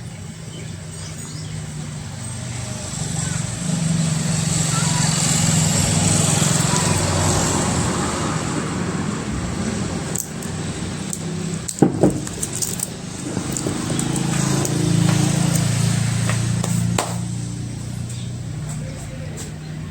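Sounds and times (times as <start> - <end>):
electric churner motor humming: 0.0 - 19.3
sharp knock: 16.3 - 17.3.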